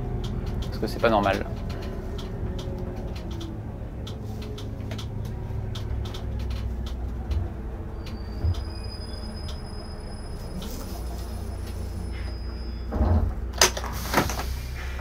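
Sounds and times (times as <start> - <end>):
diesel engine idling: 0.0 - 12.8
light irregular clicks: 0.1 - 8.2
thin high whistle: 8.0 - 12.9.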